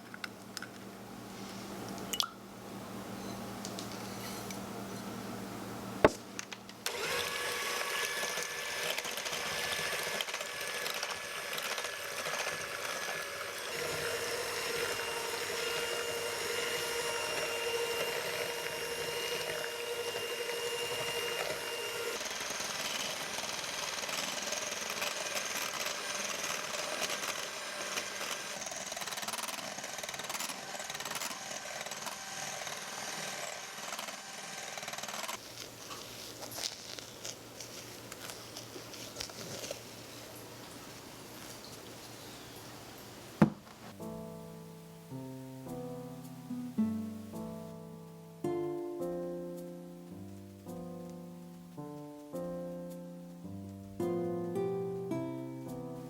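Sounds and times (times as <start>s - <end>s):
electric hand mixer whisking: 6.9s - 35.4s.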